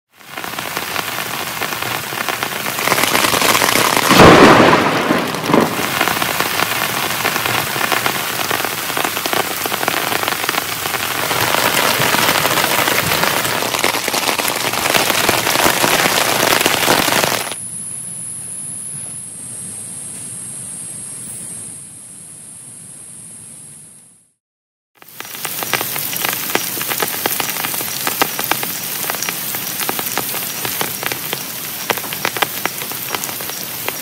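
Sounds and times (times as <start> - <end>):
heavy rain: 0.1 - 17.6, 25.0 - 34.0
thunder crack: 0.5 - 17.6.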